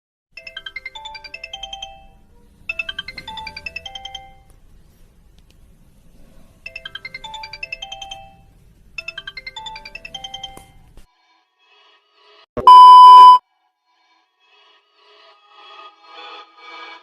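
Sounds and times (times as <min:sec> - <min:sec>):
phone ringtone melody: 0:00.4 - 0:04.5, 0:06.7 - 0:10.8, 0:12.6 - 0:13.4.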